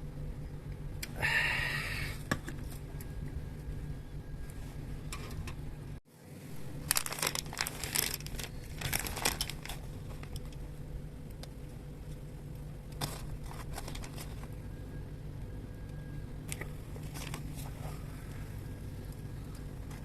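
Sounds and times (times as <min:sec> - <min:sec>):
crinkly packaging rustling: 0:06.7 - 0:10.6, 0:12.9 - 0:14.7, 0:16.5 - 0:18.5.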